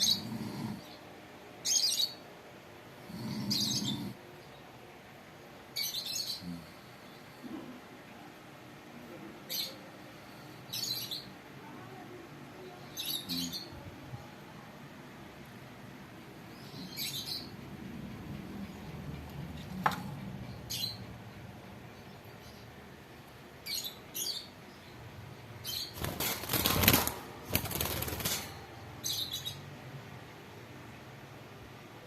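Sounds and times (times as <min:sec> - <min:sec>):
lovebird chirping: 0:16.5 - 0:17.6, 0:23.6 - 0:25.0
loud wing flapping: 0:25.9 - 0:28.6.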